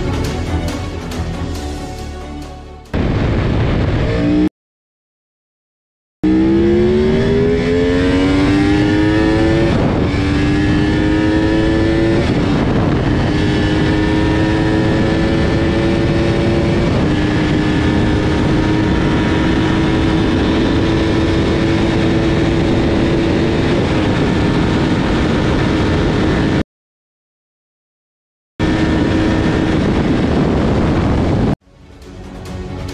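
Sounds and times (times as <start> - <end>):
motorcycle engine accelerating: 2.9 - 4.5, 6.2 - 26.6, 28.6 - 31.6
wind rush: 3.0 - 4.5, 6.3 - 26.6, 28.6 - 31.6.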